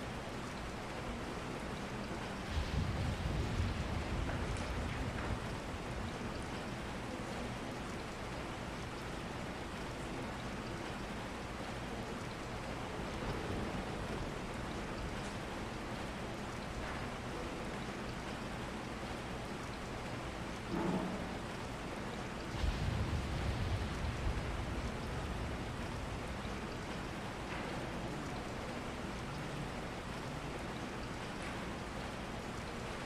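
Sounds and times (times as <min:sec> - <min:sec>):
steady rain: 0:00.0 - 0:33.0
low rumble: 0:22.5 - 0:27.4.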